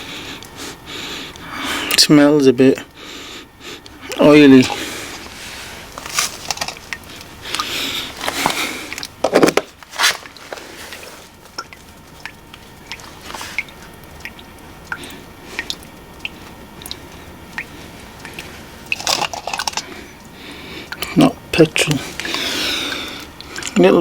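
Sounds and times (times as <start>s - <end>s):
rustling handling noise: 4.4s - 13.6s, 16.4s - 20.1s.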